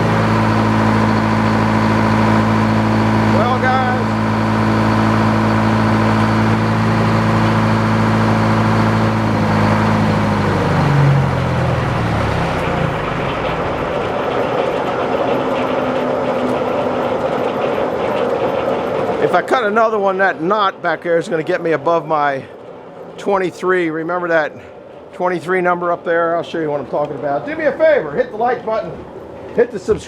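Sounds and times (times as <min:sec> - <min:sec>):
rough mechanical noise: 0:00.0 - 0:20.3
engine running and stopping: 0:00.0 - 0:20.8.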